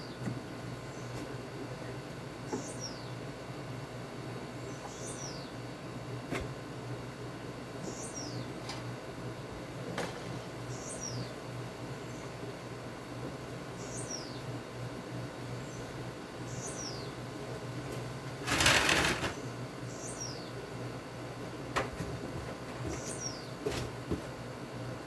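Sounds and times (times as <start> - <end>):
bird chirping: 7.8 - 8.5, 10.7 - 11.3, 19.4 - 20.6.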